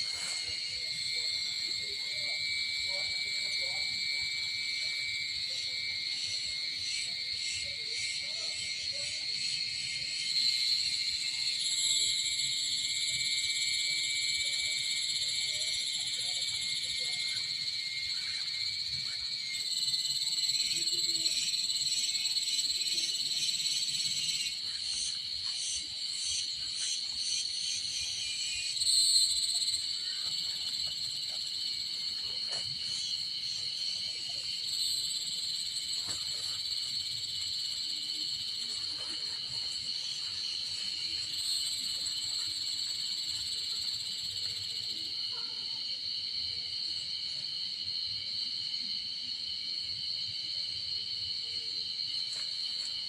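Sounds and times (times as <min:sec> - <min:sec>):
high-pitched insect chorus: 0:00.0 - 0:53.0
pulsing insect trill: 0:00.0 - 0:53.0.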